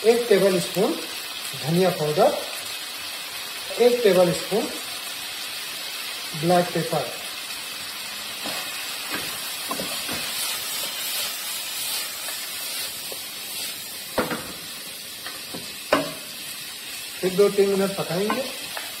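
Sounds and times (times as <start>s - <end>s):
chicken sizzling in a pan: 0.0s - 19.0s
spatula stirring: 8.4s - 16.3s
spatula knocking against pan: 15.5s - 16.2s.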